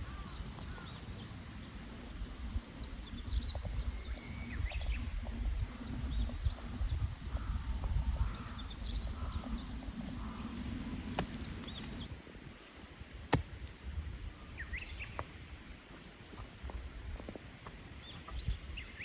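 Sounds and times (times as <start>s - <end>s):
birds chirping: 0.0s - 1.7s, 2.8s - 12.1s.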